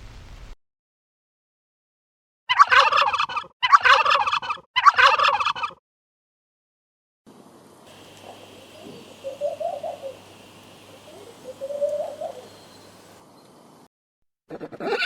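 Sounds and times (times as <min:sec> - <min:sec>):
turkey gobbling: 0:02.5 - 0:05.8, 0:07.9 - 0:13.2.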